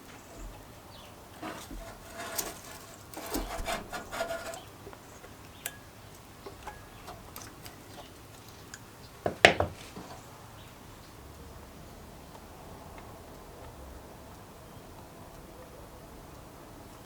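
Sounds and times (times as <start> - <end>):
metal parts clicking and knocking: 1.4 - 4.6.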